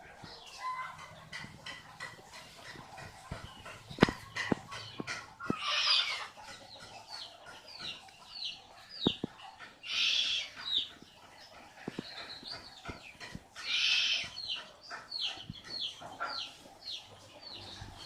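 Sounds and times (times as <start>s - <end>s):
sharp knocks: 1.3s - 5.6s
owl hissing screeches: 9.9s - 10.5s, 13.7s - 14.2s.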